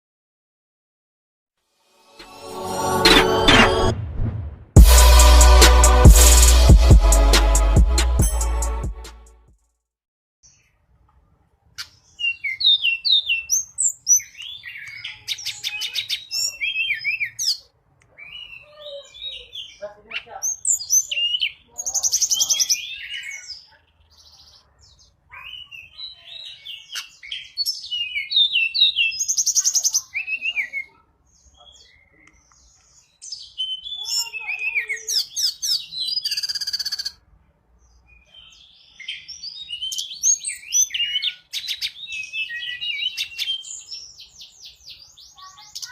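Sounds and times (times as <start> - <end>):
bird chirping and trilling: 11.8 - 37.2, 38.0 - 45.9.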